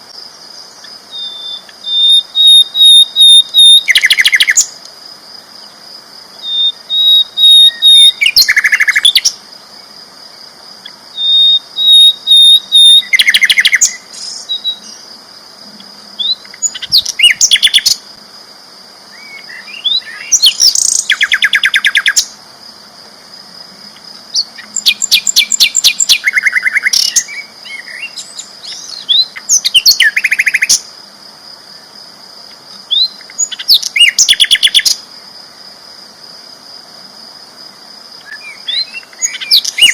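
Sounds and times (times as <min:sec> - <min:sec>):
bird singing dry trills: 0:00.8 - 0:04.8, 0:06.4 - 0:09.4, 0:11.2 - 0:15.1, 0:15.7 - 0:18.0, 0:24.4 - 0:30.8, 0:38.2 - 0:39.9.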